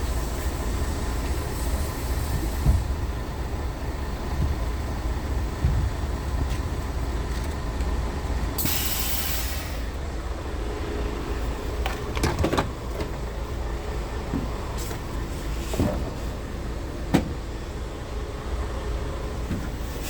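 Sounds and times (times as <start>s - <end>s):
truck engine rumbling: 0.0s - 20.0s
air brake hiss: 0.3s - 2.9s, 8.6s - 10.0s.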